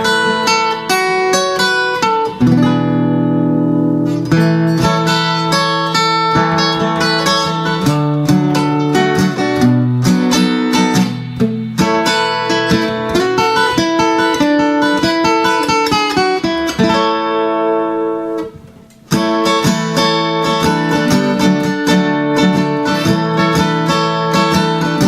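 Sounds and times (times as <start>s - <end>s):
electric guitar strummed and picked: 0.0s - 25.0s.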